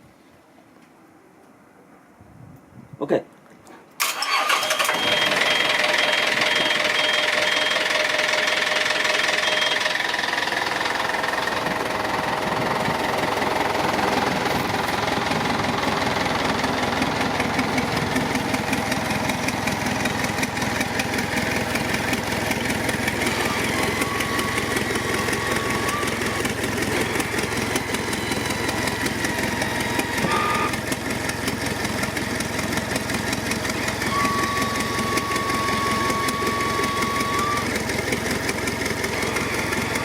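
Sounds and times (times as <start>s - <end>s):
thin high tone: 4.9s - 30.8s
boat engine idling: 5.2s - 40.0s.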